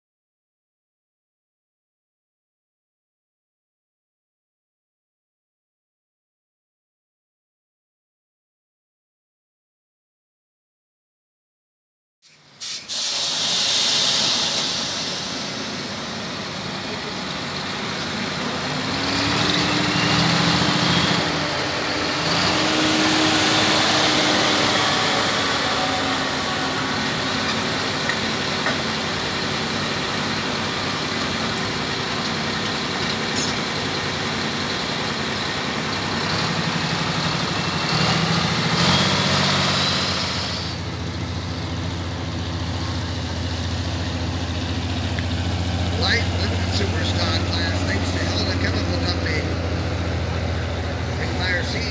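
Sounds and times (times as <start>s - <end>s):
tractor engine roaring under load: 12.5s - 51.9s.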